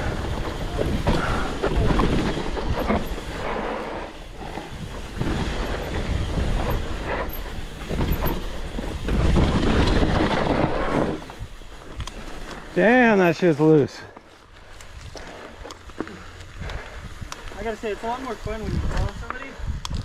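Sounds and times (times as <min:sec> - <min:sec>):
wind noise on microphone: 0:00.0 - 0:12.2, 0:16.4 - 0:20.0
tyres crunching over dirt and rocks: 0:00.0 - 0:19.3
mountain bike rattling: 0:00.0 - 0:20.0.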